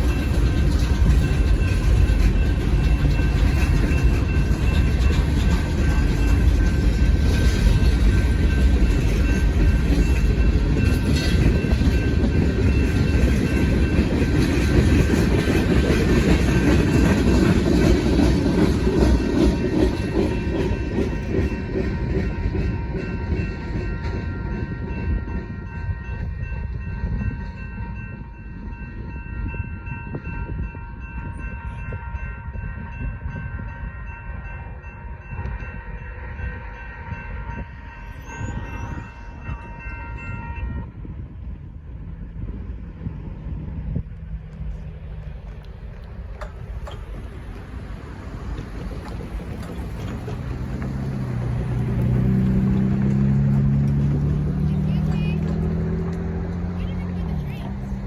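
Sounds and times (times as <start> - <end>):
wheels clacking over rail: 0.0 - 24.4, 44.4 - 58.0
freight cars rolling past: 0.0 - 27.8, 41.2 - 58.0
high ringing tones: 19.1 - 41.0.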